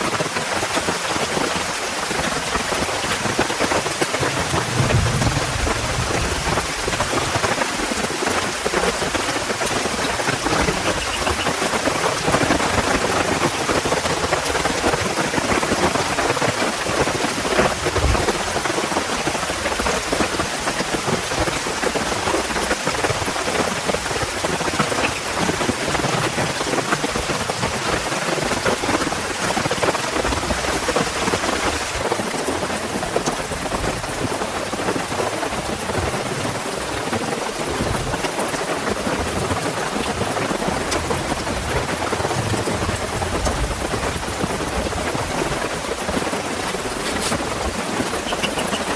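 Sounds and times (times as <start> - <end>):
heavy rain falling: 0.0 - 48.9
low thud: 4.5 - 7.2.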